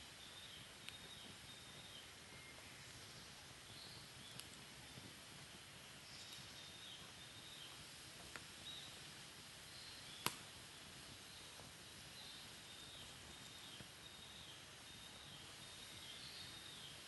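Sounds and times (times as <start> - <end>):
wood fire crackling: 0.0 - 17.0
fire popping: 3.6 - 9.2, 10.0 - 14.0.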